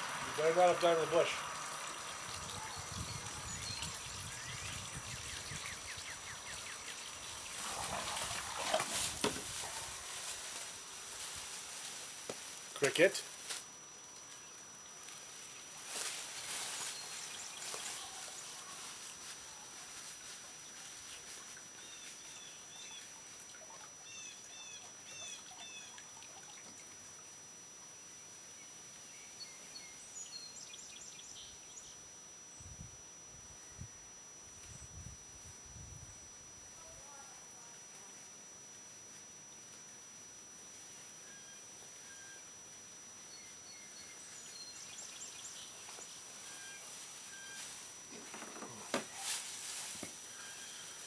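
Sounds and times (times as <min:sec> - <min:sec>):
outdoor background noise: 0:00.0 - 0:51.0
thin steady high tone: 0:00.0 - 0:51.0
bird chirping: 0:01.3 - 0:07.2
rustling: 0:07.3 - 0:13.7, 0:15.1 - 0:22.4, 0:45.8 - 0:51.0.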